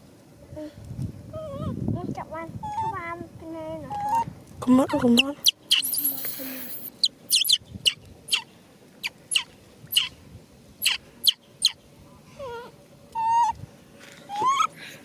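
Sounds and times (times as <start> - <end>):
baby monkey crying: 5.7 - 7.6, 14.3 - 14.7.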